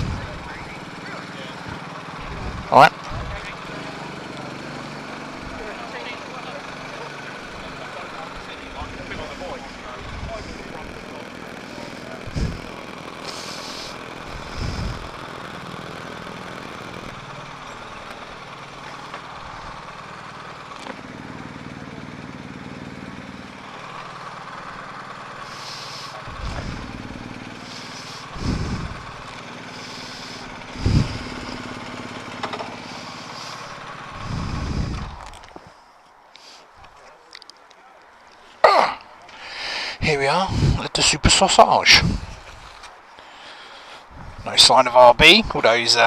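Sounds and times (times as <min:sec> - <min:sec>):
motorcycle engine running: 0:00.0 - 0:37.5, 0:38.8 - 0:46.0
short low thumps: 0:30.8 - 0:31.4.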